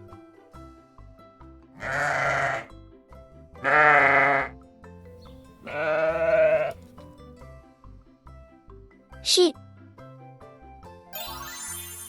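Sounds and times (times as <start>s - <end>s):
light background music: 0.0s - 12.0s
sheep bleating: 1.8s - 2.7s, 3.6s - 4.5s, 5.6s - 6.9s.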